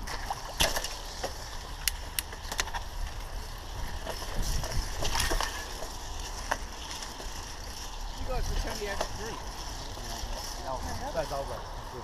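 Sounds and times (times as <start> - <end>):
bike clicks and rattles: 0.0 - 12.0
bike tyres rumbling on trail: 0.0 - 12.0
wind on microphone: 3.5 - 5.6.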